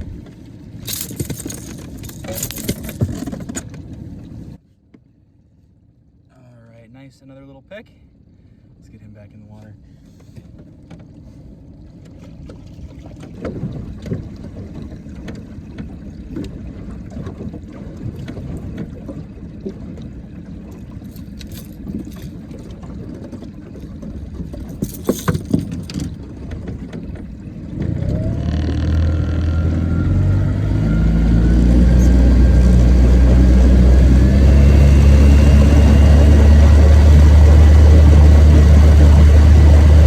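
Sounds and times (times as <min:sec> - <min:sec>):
gear knocking in a boat: 0:00.1 - 0:04.2, 0:11.9 - 0:29.6
boat motor running: 0:10.2 - 0:40.0
low rumble: 0:24.5 - 0:40.0.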